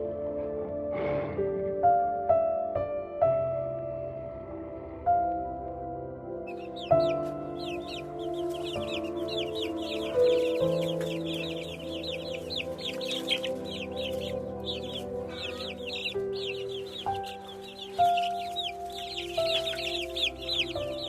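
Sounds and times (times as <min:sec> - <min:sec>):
background music with held notes: 0:00.0 - 0:21.0
small birds chirping: 0:06.4 - 0:21.0.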